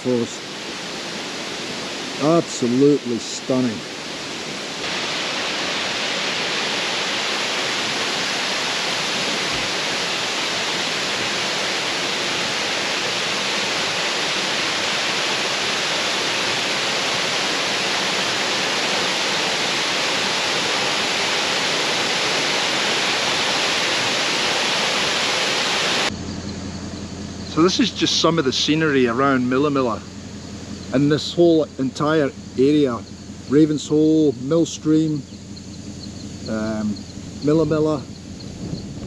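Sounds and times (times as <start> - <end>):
waterfall rushing: 0.0 - 26.1, 27.6 - 30.0.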